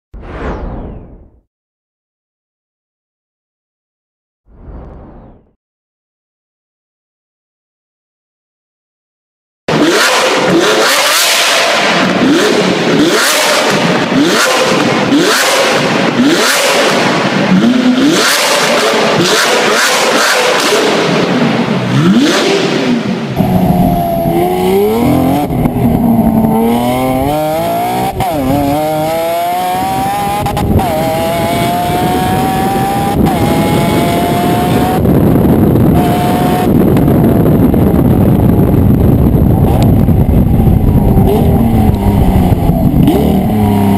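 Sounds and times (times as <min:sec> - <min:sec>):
sports car engine revving: 0:09.7 - 0:37.8, 0:39.4 - 0:43.9
steady rushing noise: 0:20.4 - 0:43.9
exhaust crackles and pops: 0:34.9 - 0:43.7.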